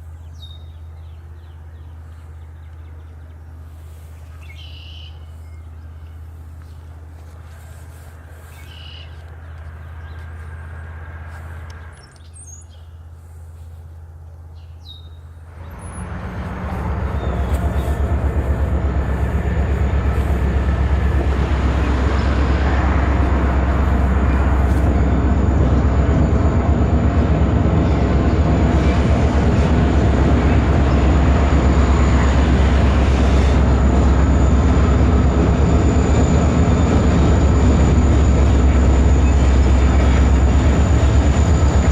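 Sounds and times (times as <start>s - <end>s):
birds chirping: 0.0s - 13.4s, 14.2s - 16.0s, 16.7s - 21.1s
diesel locomotive engine rumble: 0.0s - 41.9s.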